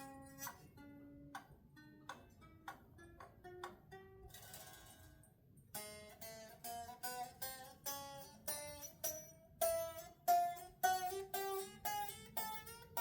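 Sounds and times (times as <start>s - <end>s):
rake across guitar strings: 0.0s - 0.8s
electric guitar notes plucked: 5.8s - 13.0s.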